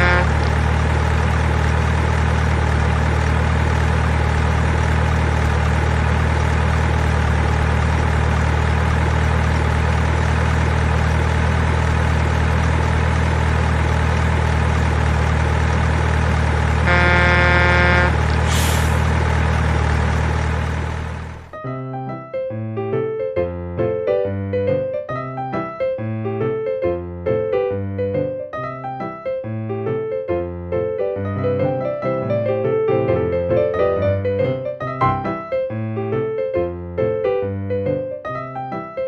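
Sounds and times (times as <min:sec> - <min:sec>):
truck horn blast: 0:00.0 - 0:00.6, 0:16.8 - 0:19.1
toy truck engine sound: 0:00.0 - 0:21.5
short hiss: 0:18.5 - 0:19.1.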